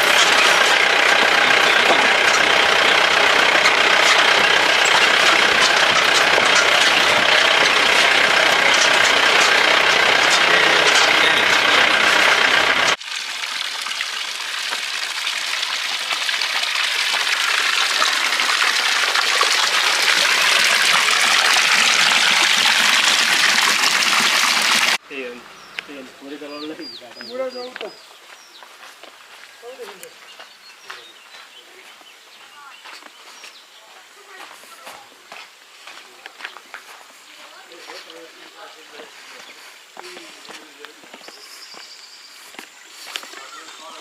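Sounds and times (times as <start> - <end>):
vehicle engine running: 0.0 - 13.0, 15.8 - 28.0.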